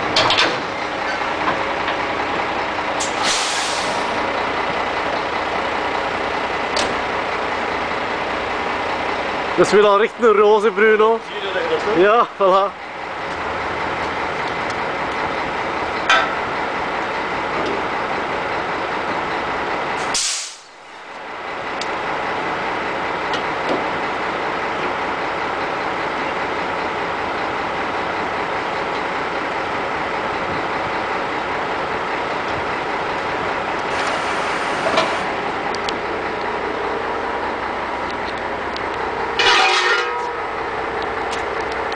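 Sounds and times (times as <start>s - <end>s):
truck engine droning: 0.0s - 41.9s
short sharp air hiss: 3.0s - 4.1s, 20.0s - 20.8s.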